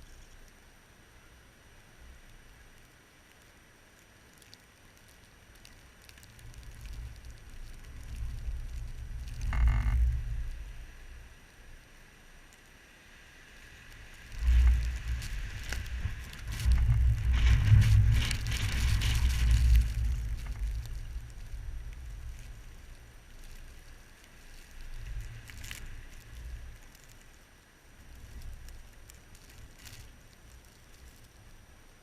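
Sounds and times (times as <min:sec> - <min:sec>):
wind gusting on microphone: 0:14.0 - 0:23.2.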